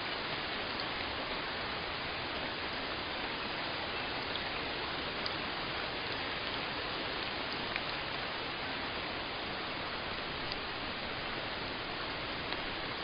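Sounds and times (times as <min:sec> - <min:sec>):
steady rain falling: 0:00.0 - 0:13.0
raindrop ticks: 0:05.2 - 0:05.4, 0:07.2 - 0:08.0, 0:10.2 - 0:10.7.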